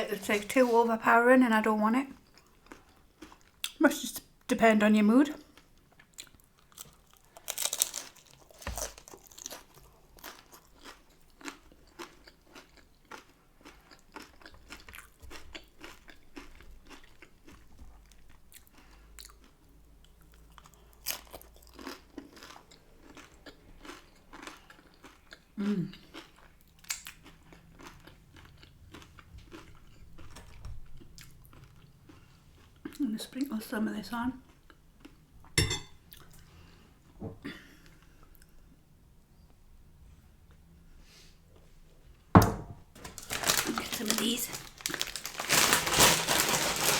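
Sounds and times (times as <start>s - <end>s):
chewing: 2.2s - 3.8s, 5.5s - 33.0s
taco shell crunching: 6.0s - 17.7s, 43.0s - 46.9s.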